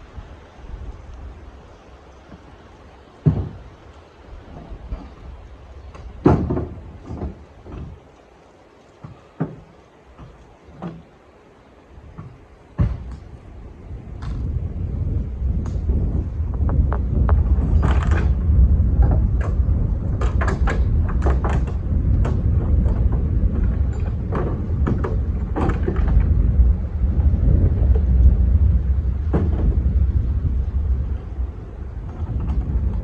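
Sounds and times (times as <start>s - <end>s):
wind buffeting microphone: 0.0s - 8.2s, 9.0s - 33.0s
sharp knocks and clunks: 3.2s - 3.7s, 5.9s - 8.0s, 9.0s - 11.1s, 12.1s - 13.3s, 15.6s - 26.4s, 29.2s - 30.0s.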